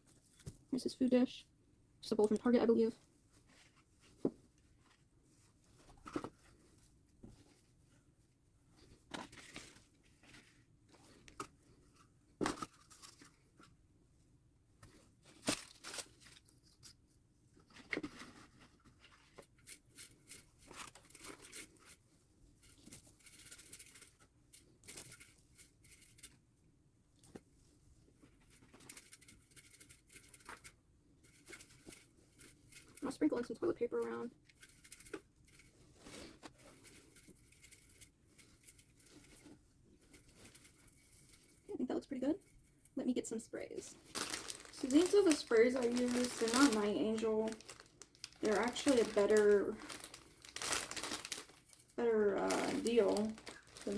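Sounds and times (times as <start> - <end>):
rustling in bedding: 43.8 - 53.9
paper rustling and tearing: 43.9 - 53.9.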